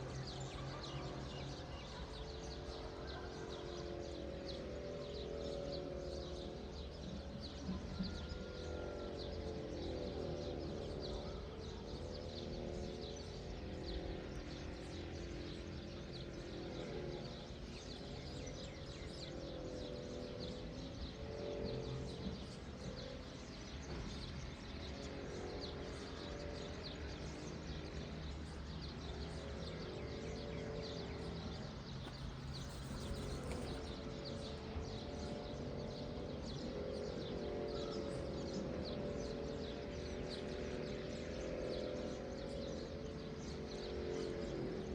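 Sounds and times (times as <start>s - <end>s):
soft wavering drone: 0.0s - 44.9s
small birds chirping: 9.4s - 44.9s.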